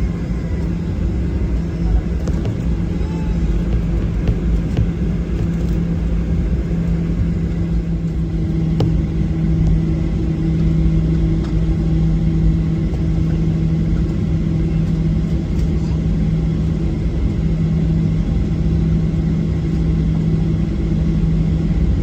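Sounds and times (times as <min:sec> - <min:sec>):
higher hum: 0:00.0 - 0:12.7
jet engines rumbling in cabin: 0:00.0 - 0:22.0.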